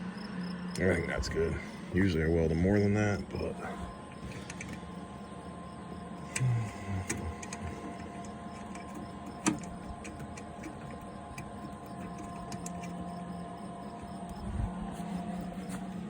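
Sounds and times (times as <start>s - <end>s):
steady mechanical hum: 0.0s - 16.0s
faint ticks: 6.2s - 14.4s.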